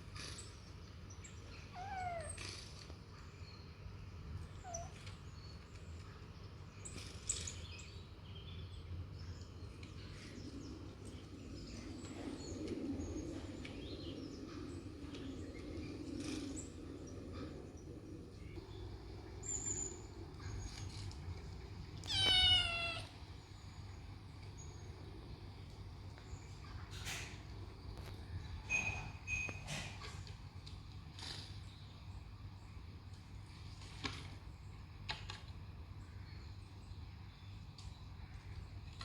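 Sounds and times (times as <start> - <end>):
bird chirps and gliding calls: 0.1 - 27.1
kitten sounds: 1.6 - 2.9, 4.4 - 5.3, 22.0 - 23.2.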